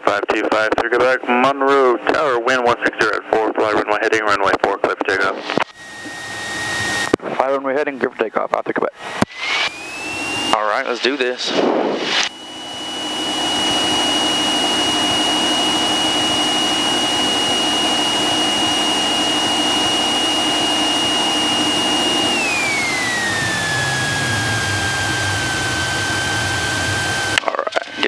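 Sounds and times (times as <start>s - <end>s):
small plane engine in cockpit: 4.6s - 7.2s, 8.9s - 28.0s.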